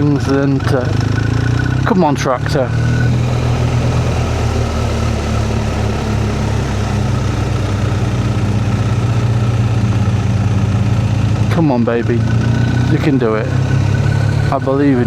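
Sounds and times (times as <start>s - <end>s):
motorcycle engine pulling at low revs: 0.0s - 15.0s
wind and road noise: 0.0s - 15.0s.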